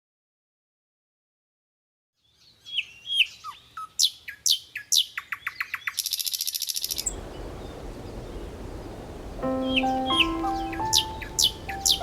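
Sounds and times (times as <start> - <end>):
bird chirps and trill: 9.4 - 12.0.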